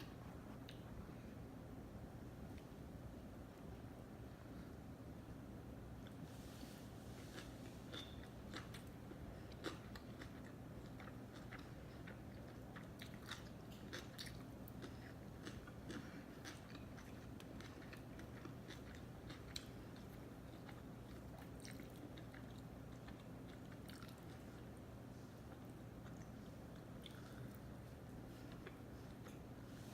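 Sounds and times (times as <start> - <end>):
faint low hum: 0.0 - 29.9
wet chewing sounds: 7.0 - 29.9.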